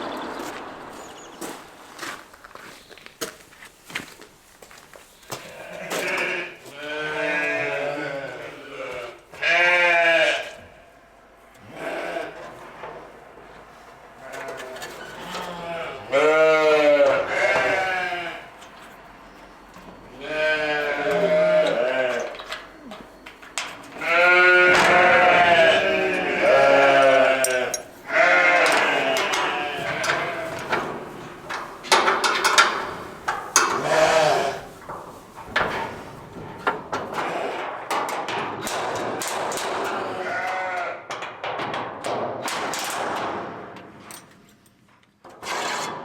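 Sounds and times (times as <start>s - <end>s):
sheep bleating: 5.4s - 10.8s, 14.2s - 18.5s, 20.1s - 23.1s, 23.9s - 34.9s, 40.0s - 41.1s
knocks: 24.6s - 37.3s.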